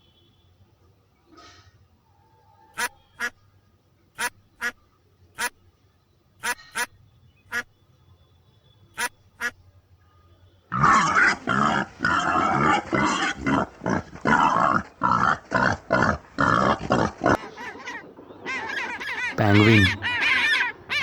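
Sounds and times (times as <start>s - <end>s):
animal calling: 2.8s - 3.3s, 6.4s - 6.9s, 10.7s - 21.0s.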